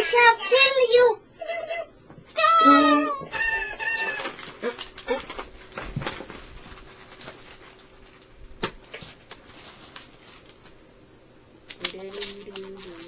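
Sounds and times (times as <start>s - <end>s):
rustling of handling: 4.2s - 10.8s, 11.7s - 13.0s.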